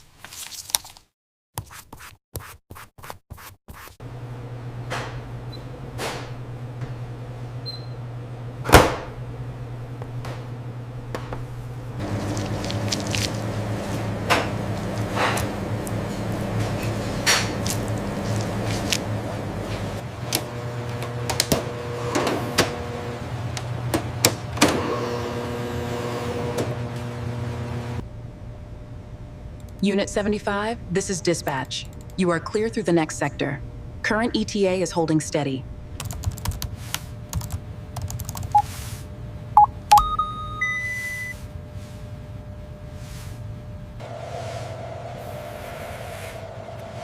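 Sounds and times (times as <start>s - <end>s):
steady mechanical hum: 4.0s - 47.0s
short electronic beeps: 39.6s - 41.4s
steady electronic tone: 44.0s - 47.0s.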